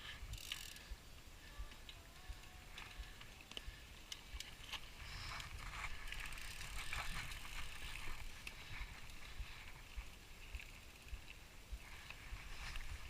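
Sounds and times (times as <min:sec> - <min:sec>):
gear rustling: 0:01.7 - 0:11.2
footsteps on rocky trail: 0:04.5 - 0:10.2.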